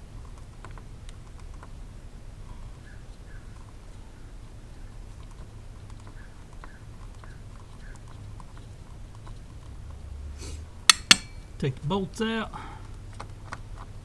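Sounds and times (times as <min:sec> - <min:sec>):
low steady hum: 0:08.2 - 0:14.0
ratchet clicking: 0:10.9 - 0:11.5.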